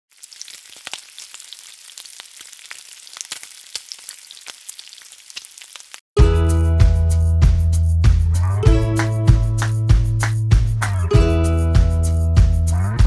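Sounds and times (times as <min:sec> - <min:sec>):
food sizzling in a pan: 0:00.1 - 0:06.0
loud bass-heavy music: 0:06.2 - 0:13.0.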